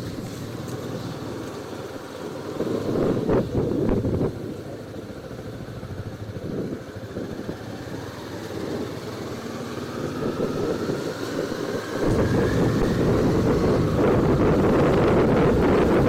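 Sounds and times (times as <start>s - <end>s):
motorcycle engine at low speed: 0.0s - 16.0s
faint rising whine: 11.8s - 16.0s.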